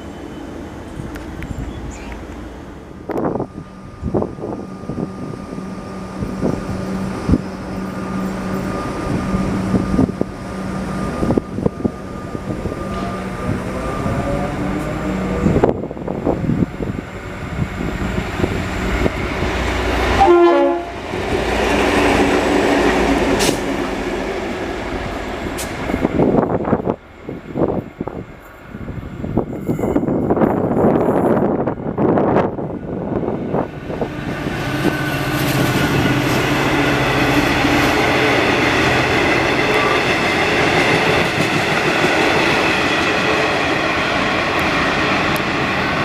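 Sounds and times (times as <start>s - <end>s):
train engine hum: 0.0s - 46.0s
train horn blast: 20.0s - 21.0s, 37.9s - 40.4s.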